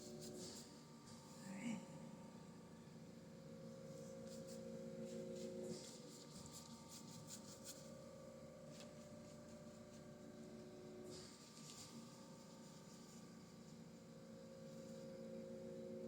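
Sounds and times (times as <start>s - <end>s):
brush rubbing on canvas: 0.0s - 0.8s, 3.7s - 15.2s.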